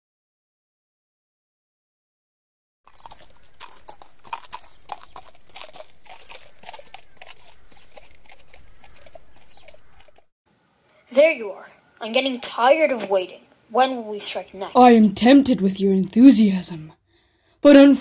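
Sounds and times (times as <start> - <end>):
horse hooves on crunchy ground: 2.9 - 10.3
steady hiss: 10.5 - 14.8.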